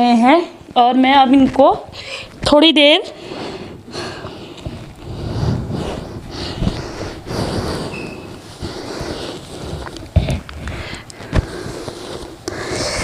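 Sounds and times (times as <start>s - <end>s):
towel rubbing against hair: 4.7s - 13.0s.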